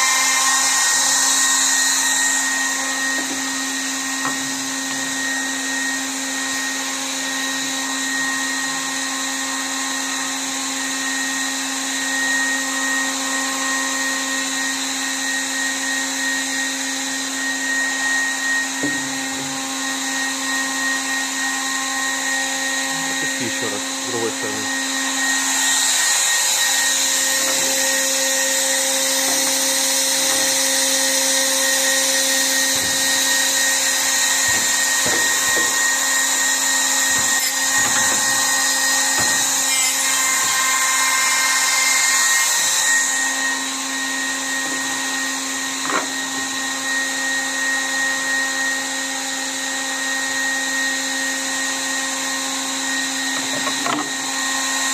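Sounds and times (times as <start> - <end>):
machine motor hum and whine: 0.0 - 41.9.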